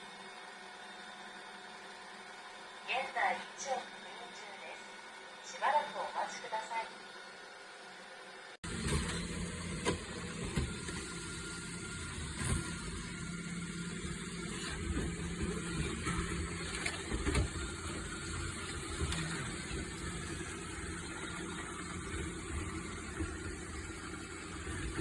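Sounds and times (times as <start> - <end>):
robot vacuum motor hum: 7.1 - 25.0.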